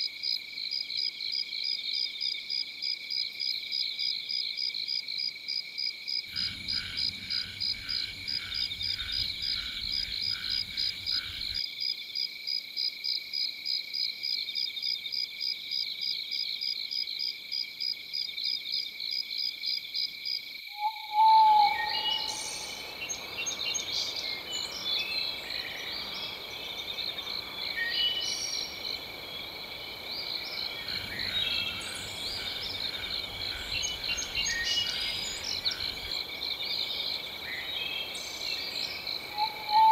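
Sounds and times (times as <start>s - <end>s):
frogs and insects chorus: 0.0s - 39.9s
bird chirps: 20.7s - 39.9s
running water hiss: 21.8s - 39.9s.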